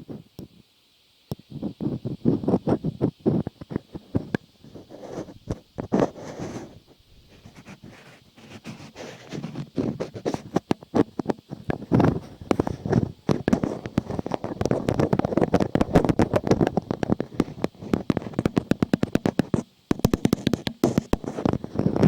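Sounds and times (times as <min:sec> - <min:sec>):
rapid crackling and clicking: 0:01.3 - 0:22.0.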